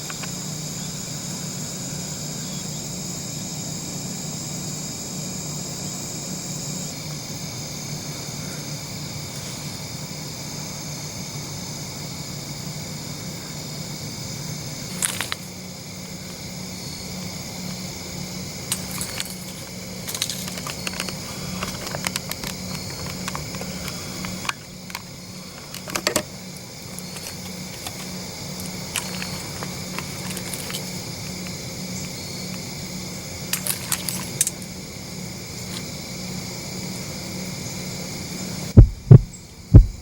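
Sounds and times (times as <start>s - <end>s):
evening insects chorus: 0.0s - 40.0s
metallic rattles of gear handled: 14.9s - 15.6s, 18.7s - 32.6s, 33.5s - 34.7s
low hum: 38.8s - 40.0s.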